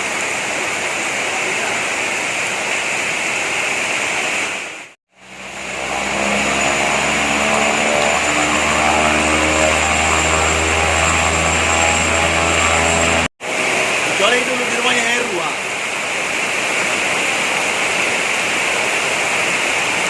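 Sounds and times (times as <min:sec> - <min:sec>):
heavy rain hissing: 0:00.0 - 0:06.0, 0:12.3 - 0:20.0
airliner engines humming: 0:05.2 - 0:20.0.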